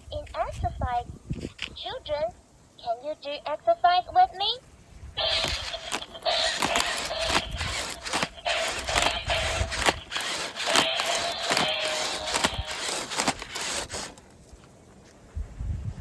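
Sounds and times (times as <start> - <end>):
toy motors clicking and whirring: 5.2 - 14.4.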